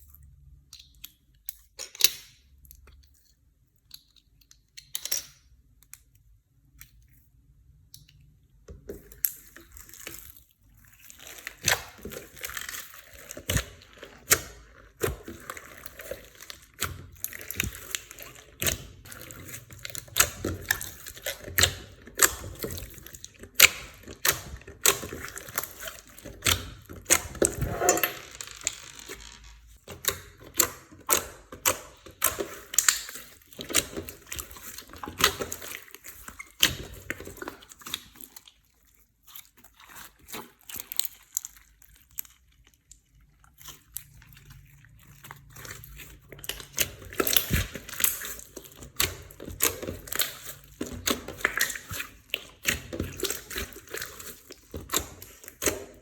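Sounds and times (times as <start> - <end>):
slime clicking and popping: 11.2 - 28.0, 29.8 - 38.3, 45.5 - 56.0.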